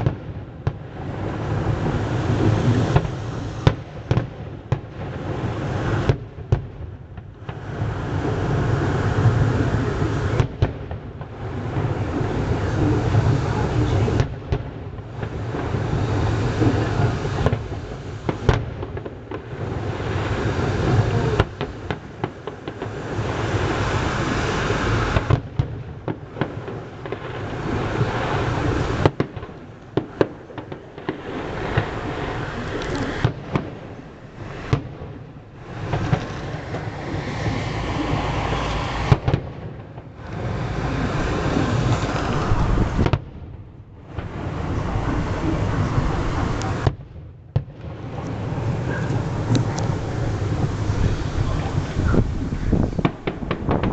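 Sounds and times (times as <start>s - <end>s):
firework bangs: 0.0s - 53.9s
rumbling crackling fireworks: 0.0s - 53.9s.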